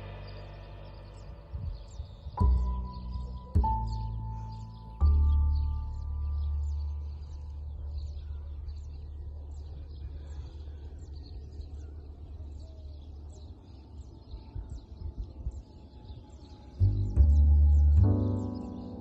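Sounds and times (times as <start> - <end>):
low rumble: 0.0 - 13.4
small birds chirping: 0.0 - 19.0.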